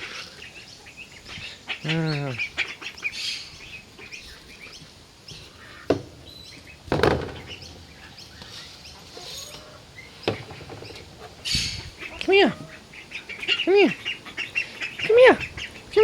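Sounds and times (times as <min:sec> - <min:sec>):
ducklings peeping: 0:00.0 - 0:16.0
sharp knocks: 0:05.9 - 0:06.3, 0:06.9 - 0:07.7.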